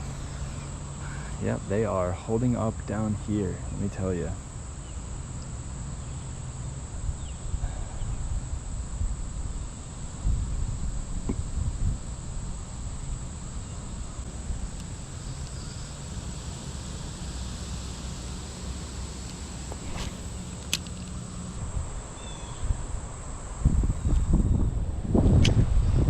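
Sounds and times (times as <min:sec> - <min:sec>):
insects trilling: 0:00.0 - 0:25.2
wind rumble on microphone: 0:06.9 - 0:20.7, 0:21.5 - 0:26.0
sharp clicks: 0:14.6 - 0:21.6.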